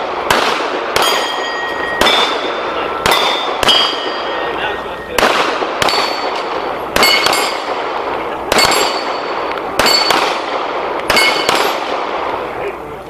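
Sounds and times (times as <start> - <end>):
pistol shots: 0.0 - 12.6
steel plate clanging: 1.0 - 5.2, 5.8 - 7.8, 8.6 - 10.2.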